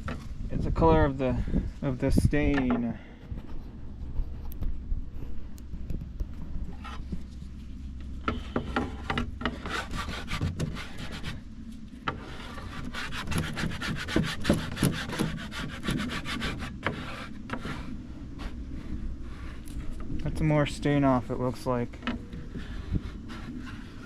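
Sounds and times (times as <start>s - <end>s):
steel wool scrubbing wood: 6.7s - 11.4s, 12.1s - 24.0s.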